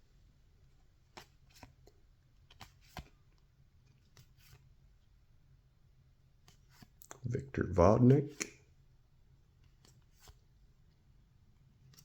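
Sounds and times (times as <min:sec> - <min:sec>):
cards being flipped: 0:01.1 - 0:01.9, 0:02.5 - 0:03.2, 0:04.0 - 0:04.7.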